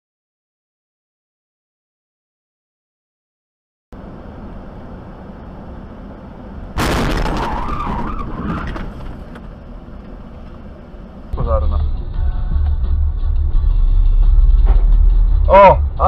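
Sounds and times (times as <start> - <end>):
car and road noise: 3.9 - 16.0
car crash impact: 6.8 - 9.6
skidding tyres squealing: 7.0 - 10.4.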